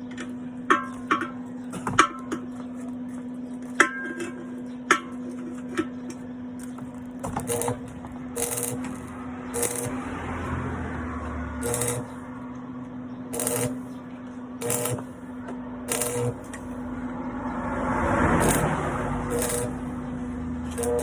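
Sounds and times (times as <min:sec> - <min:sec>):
welding electrical hum: 0:00.0 - 0:17.4, 0:18.1 - 0:21.0
short sharp welding bursts: 0:07.3 - 0:10.2, 0:11.6 - 0:12.3, 0:13.3 - 0:14.0, 0:14.6 - 0:16.9, 0:18.4 - 0:20.0, 0:20.7 - 0:21.0.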